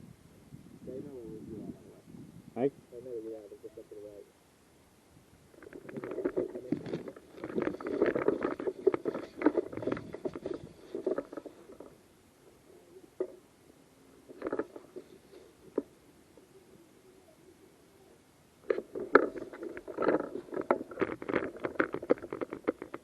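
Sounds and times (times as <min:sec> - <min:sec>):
clothing rustling against camera: 0:05.6 - 0:12.0.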